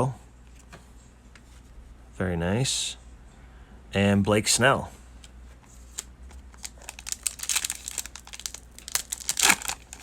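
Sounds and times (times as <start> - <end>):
foil wrapper tearing and crinkling: 6.5 - 10.0.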